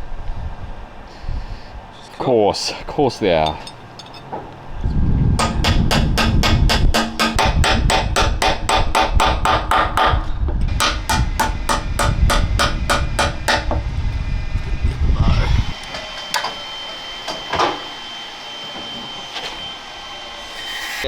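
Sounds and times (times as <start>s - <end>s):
rapid hammering on steel: 5.4s - 13.8s.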